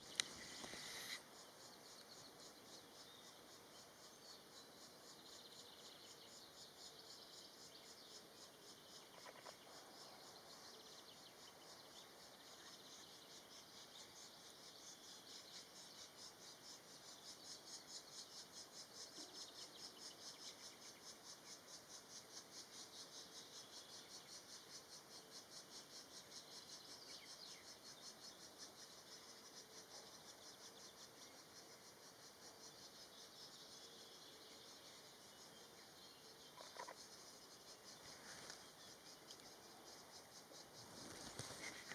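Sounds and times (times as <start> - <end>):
insect high-pitched chirps: 0.0 - 41.9.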